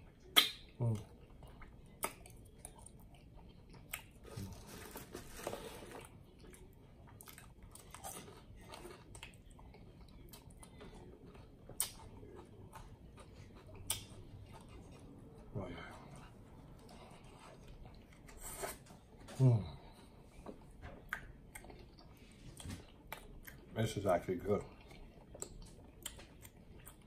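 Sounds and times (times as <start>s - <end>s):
person chewing: 0.2s - 23.7s, 24.6s - 27.0s
mouth clicks and smacks: 0.3s - 1.0s, 1.6s - 2.8s.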